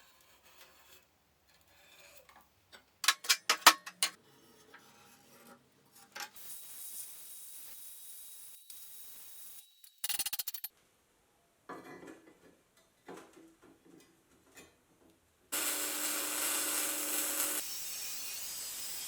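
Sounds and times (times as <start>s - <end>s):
power tool running: 15.6s - 19.0s.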